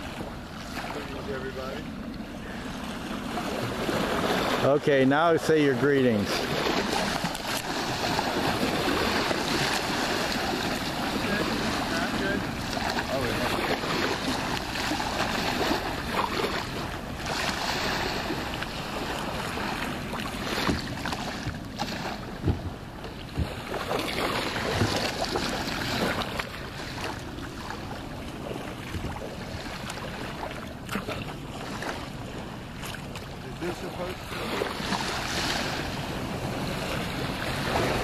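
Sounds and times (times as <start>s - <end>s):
waves washing on beach: 0.0s - 38.0s
wind buffeting microphone: 6.1s - 30.4s.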